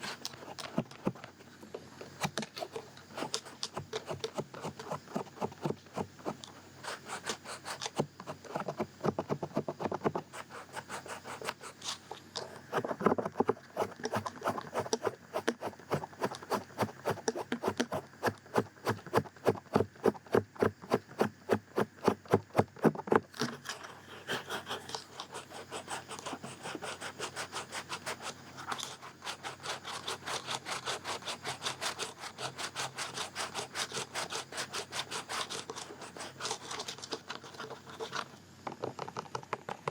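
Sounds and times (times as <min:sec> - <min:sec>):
ear scratching strokes: 0:09.3 - 0:23.1, 0:24.2 - 0:38.2.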